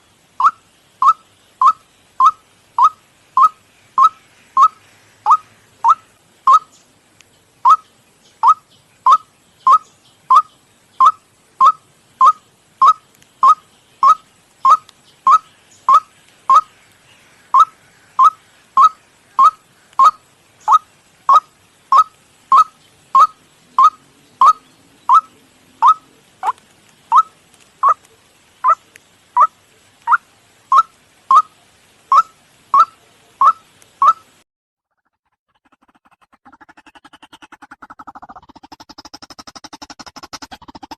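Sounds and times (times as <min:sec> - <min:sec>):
waterhen calling kwak notes: 0:00.0 - 0:06.8, 0:07.6 - 0:16.8, 0:17.5 - 0:34.4, 0:35.0 - 0:40.9.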